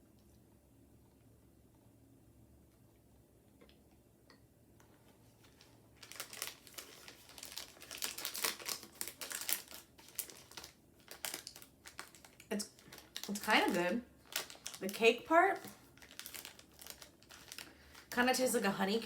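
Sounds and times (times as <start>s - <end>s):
plastic wrapper crinkling: 5.4s - 19.0s.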